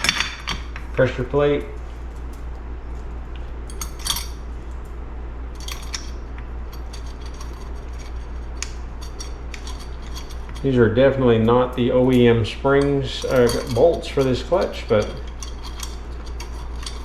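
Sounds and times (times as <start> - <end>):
steady low hum: 0.0 - 17.0
metallic clinks of clutch parts: 3.7 - 4.8, 5.6 - 17.0.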